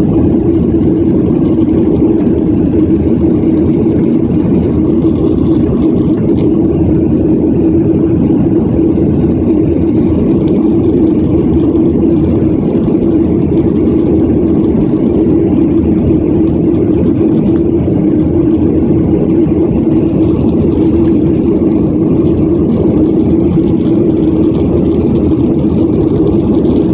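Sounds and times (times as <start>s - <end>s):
jet engine and airflow in cabin: 0.0s - 26.9s.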